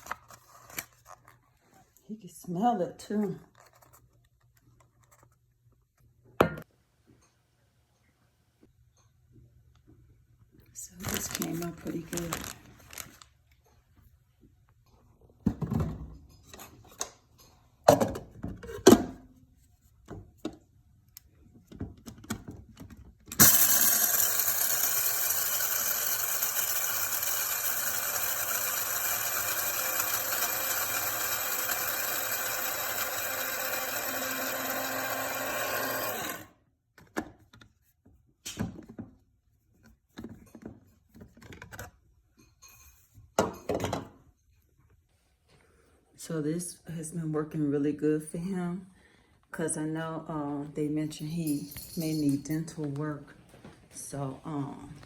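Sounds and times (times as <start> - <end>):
coffee grinder whining: 23.3 - 36.6.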